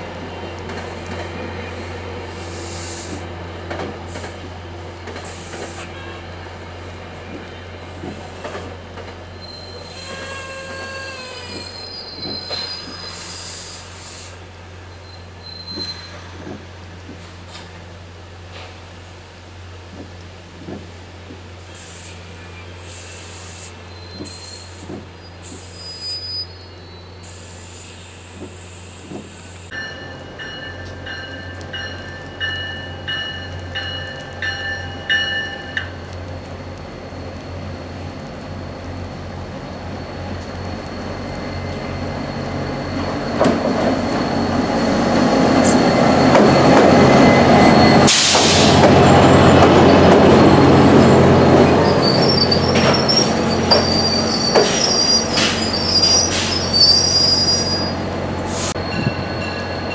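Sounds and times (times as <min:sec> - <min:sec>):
train wheels squealing on rails: 0:00.7 - 0:03.3, 0:05.1 - 0:17.7, 0:20.7 - 0:59.9
railroad bell ringing: 0:29.7 - 0:36.0, 0:58.8 - 0:59.9.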